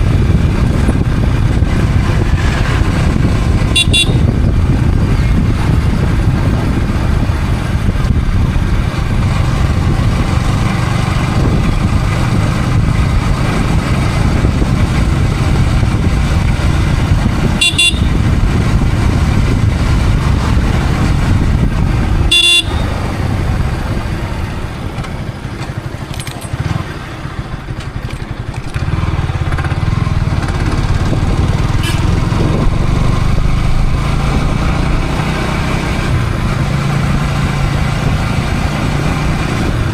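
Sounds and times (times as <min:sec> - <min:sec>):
wind rush: 0:00.0 - 0:25.3, 0:28.3 - 0:39.9
motorcycle engine: 0:00.0 - 0:39.9
vehicle horn toots: 0:03.6 - 0:04.4, 0:17.5 - 0:18.3, 0:22.3 - 0:23.0, 0:31.7 - 0:32.4.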